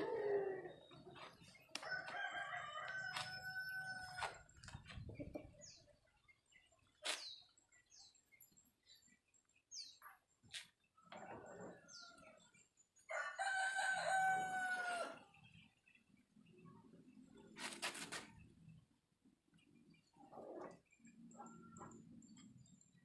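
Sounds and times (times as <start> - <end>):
rooster crowing: 1.8 - 4.4, 13.1 - 15.2.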